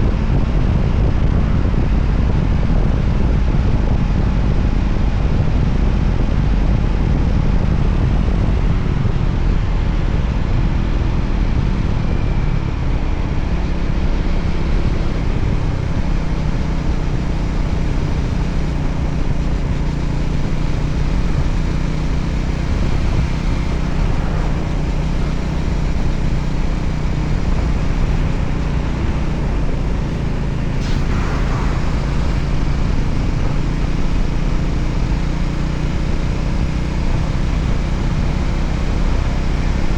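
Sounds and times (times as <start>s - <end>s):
motorcycle engine running: 0.0s - 39.9s
road noise: 0.0s - 39.9s
rushing wind: 0.0s - 39.9s
brief rushing sound: 12.9s - 35.5s.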